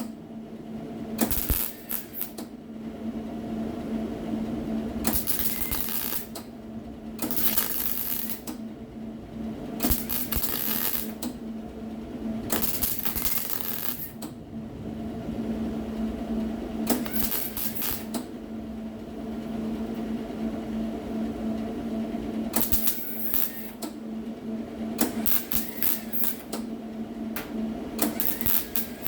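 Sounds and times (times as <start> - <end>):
steady hum: 0.0 - 29.0
electric welder welding sheet metal: 1.2 - 2.5, 5.0 - 6.5, 7.2 - 8.7, 9.8 - 11.4, 12.4 - 14.3, 16.8 - 18.4, 22.5 - 23.8, 25.0 - 26.5, 28.0 - 29.0.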